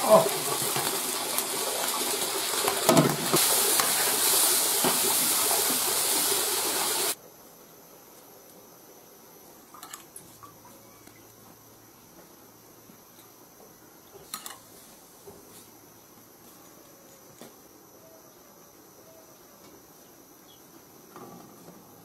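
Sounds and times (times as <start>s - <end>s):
meat sizzling in hot oil: 0.0s - 7.2s.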